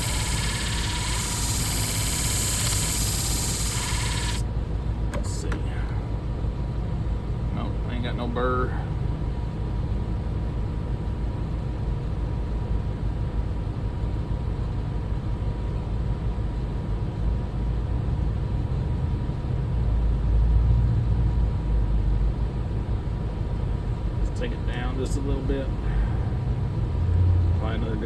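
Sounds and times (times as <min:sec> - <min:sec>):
sharpening machine motor hum: 0:00.0 - 0:04.4.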